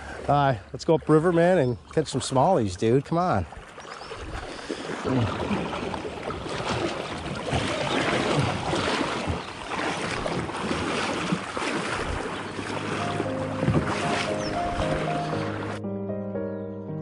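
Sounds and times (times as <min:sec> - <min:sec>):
water splashing around kayak: 0:00.0 - 0:15.8
wind buffeting microphone: 0:03.4 - 0:15.8
music: 0:12.9 - 0:17.0.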